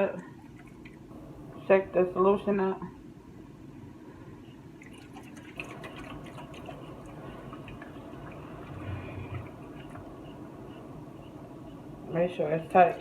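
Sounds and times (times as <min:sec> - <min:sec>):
liquid sloshing in a pot: 0:04.8 - 0:10.4.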